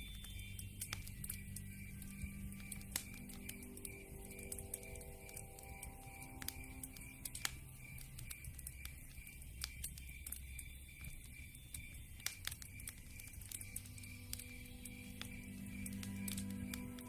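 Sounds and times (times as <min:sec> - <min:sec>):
low rumble of burning logs: 0:00.0 - 0:17.0
sharp pops and snaps: 0:00.0 - 0:17.0
wood fire crackling: 0:00.0 - 0:17.0.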